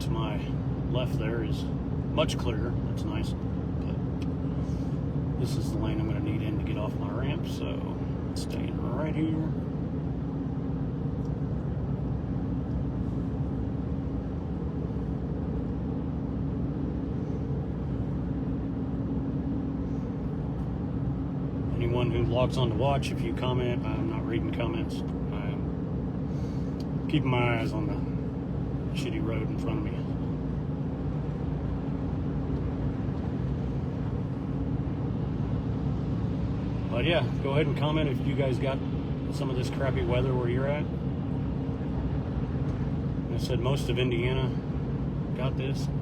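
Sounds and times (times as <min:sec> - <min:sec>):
faint steady hum: 0:00.0 - 0:46.0
tyres and engine drone: 0:00.0 - 0:46.0.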